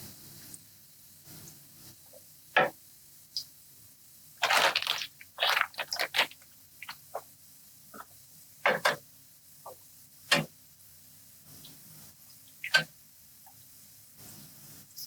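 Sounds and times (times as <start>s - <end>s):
frying in hot oil sizzling: 0.0s - 15.0s.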